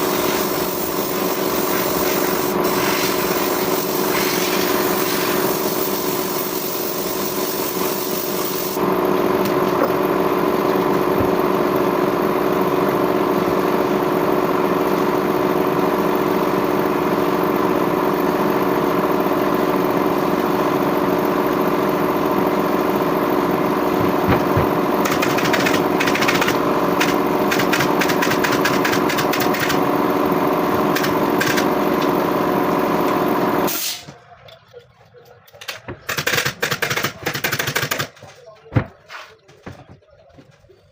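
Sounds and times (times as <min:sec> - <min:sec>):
power tool motor running: 0:00.0 - 0:13.4, 0:23.5 - 0:33.7
rapid clicks: 0:25.0 - 0:29.8.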